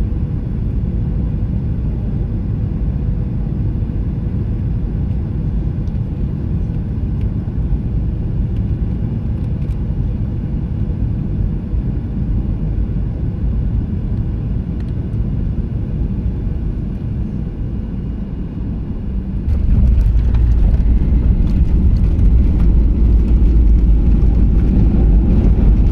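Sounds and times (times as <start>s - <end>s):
airplane cabin rumble: 0.0s - 25.9s
braking roar with rattling: 19.4s - 25.9s.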